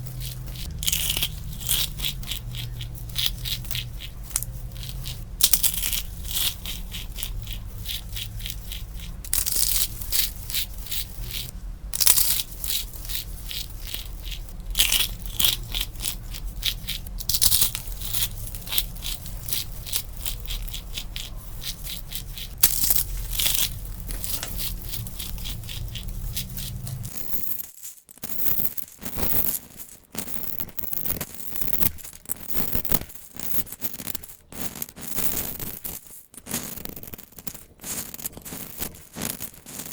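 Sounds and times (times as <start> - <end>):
low background hum: 0.0 - 27.4
dried soap crunching: 0.0 - 30.3.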